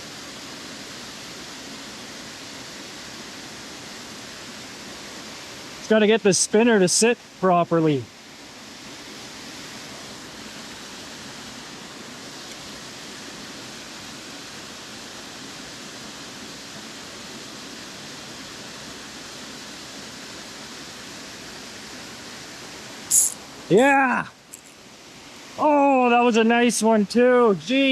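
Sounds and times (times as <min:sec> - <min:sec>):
river water rushing: 0:00.0 - 0:27.6.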